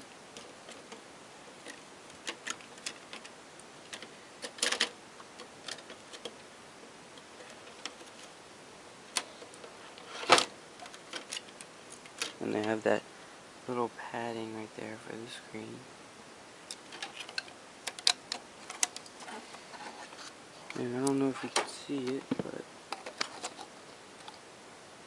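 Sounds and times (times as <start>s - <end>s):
plastic parts clicking and tapping: 0.4s - 1.0s, 1.6s - 3.3s, 3.9s - 6.4s, 7.2s - 8.3s, 9.1s - 12.8s, 16.7s - 24.4s
loud plastic clacks: 21.4s - 24.4s.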